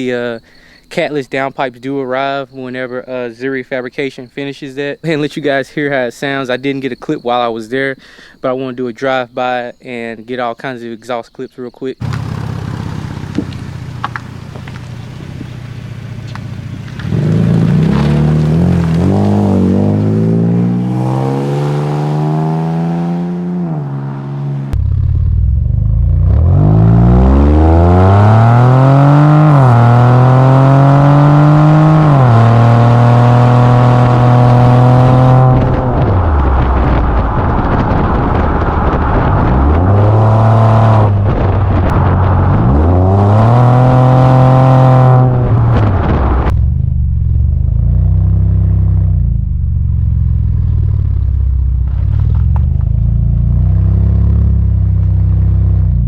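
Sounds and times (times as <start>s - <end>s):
car engine revving: 12.0s - 56.0s.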